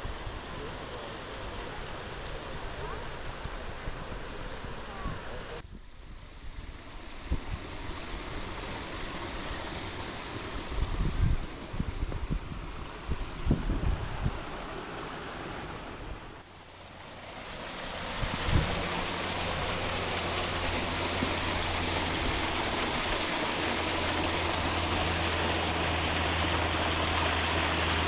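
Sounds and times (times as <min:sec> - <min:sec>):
wind on microphone: 0:02.6 - 0:14.9, 0:18.1 - 0:23.2.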